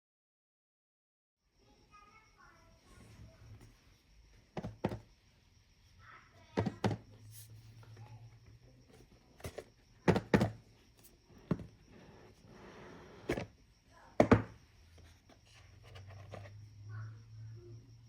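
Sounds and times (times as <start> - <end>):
box knocks and thunks: 4.6 - 5.1, 6.6 - 7.1, 9.4 - 10.7, 11.4 - 12.0, 13.1 - 13.6, 14.2 - 14.6.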